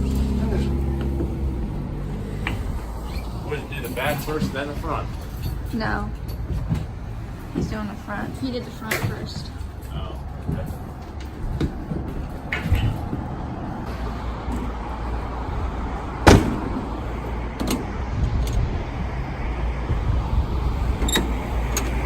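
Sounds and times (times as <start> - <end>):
vehicle engine idling: 0.0 - 22.0
loud sharp bang: 16.2 - 16.8.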